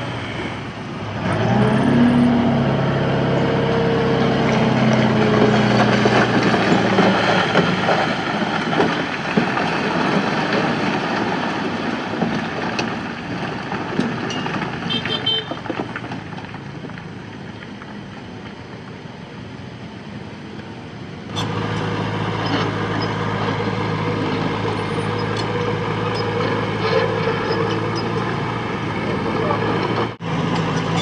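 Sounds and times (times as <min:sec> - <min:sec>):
diesel machinery engine running: 0:00.0 - 0:31.0
engine knocks: 0:04.2 - 0:18.0.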